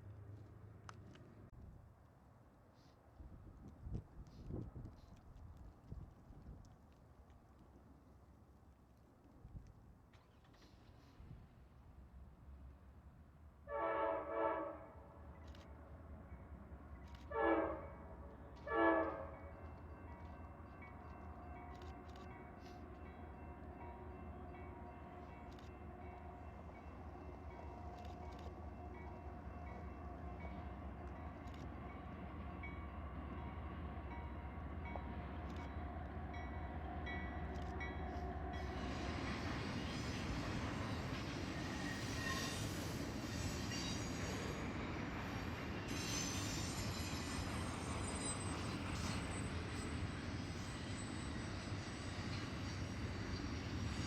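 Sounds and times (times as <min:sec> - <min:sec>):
train wheels on rails: 0:18.4 - 0:54.0.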